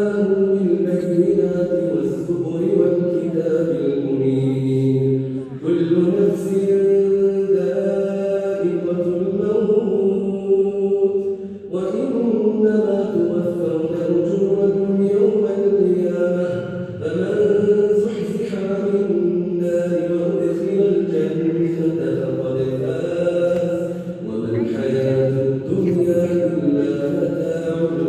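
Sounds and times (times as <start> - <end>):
man chanting: 0.0 - 28.0
man breathing: 11.3 - 11.7, 23.8 - 24.2.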